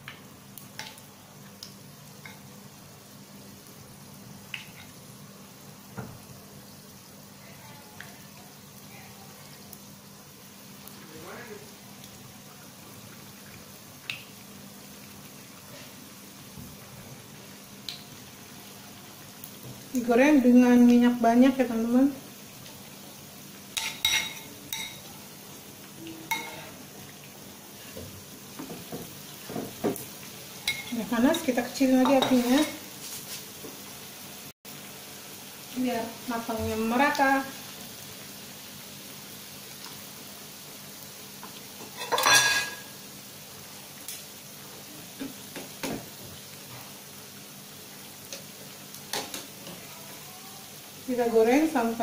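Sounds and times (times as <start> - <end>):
chicken wings deep-frying in oil: 0.0 - 52.0
metal utensil clinking on pan: 23.8 - 25.0, 26.3 - 26.6, 30.6 - 32.8, 41.9 - 42.9.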